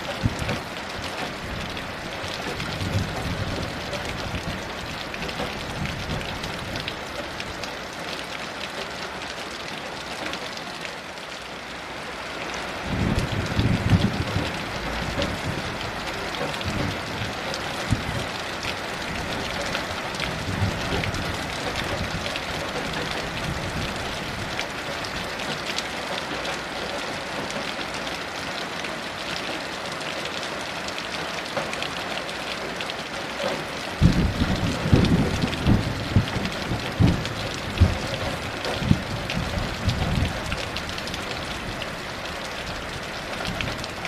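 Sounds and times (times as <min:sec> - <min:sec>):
heavy rain: 0:00.0 - 0:44.0
low rolling thunder: 0:01.4 - 0:06.9, 0:12.9 - 0:18.4, 0:19.0 - 0:25.3, 0:34.0 - 0:41.9.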